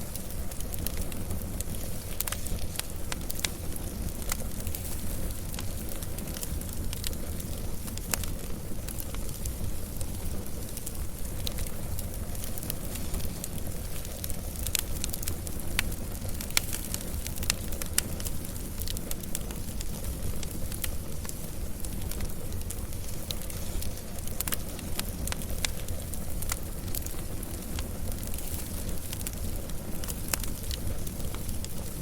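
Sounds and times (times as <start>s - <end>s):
burning wood crackles and pops: 0.0s - 32.0s
wood fire rumble and hiss: 0.0s - 32.0s.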